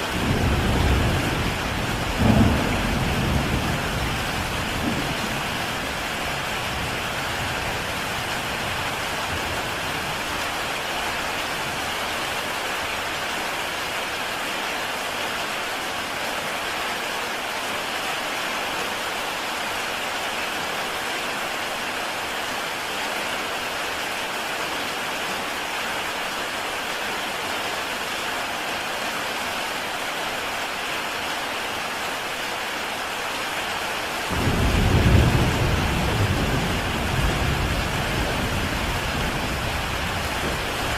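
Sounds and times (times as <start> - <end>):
heavy rain on a tile roof: 0.0 - 40.9
thunder rumbling: 0.2 - 7.9, 34.3 - 40.9.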